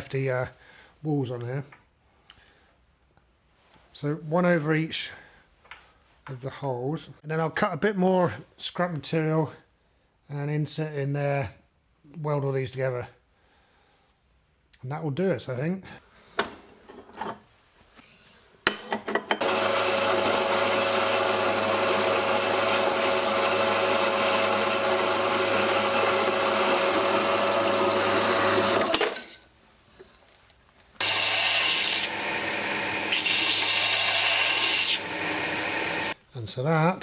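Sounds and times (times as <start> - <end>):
power tool cutting steel: 19.4 - 29.2, 31.0 - 36.2.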